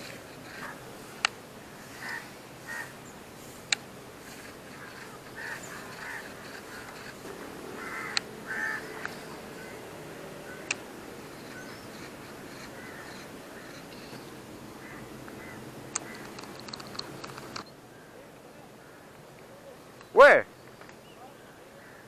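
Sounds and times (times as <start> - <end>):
harsh bird calls: 0.0 - 22.0
outdoor background noise: 0.0 - 22.0
sharp clicks: 3.6 - 7.5, 8.1 - 8.3, 8.9 - 9.3, 10.6 - 13.2, 15.2 - 17.7.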